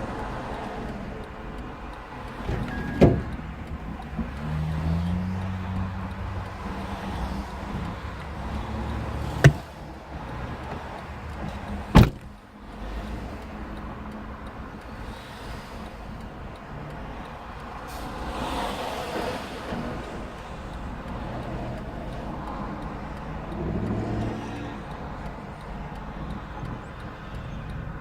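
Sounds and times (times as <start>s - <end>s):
low vehicle rumble: 0.0s - 28.0s
sharp loud thumps: 9.4s - 9.6s, 11.9s - 12.3s.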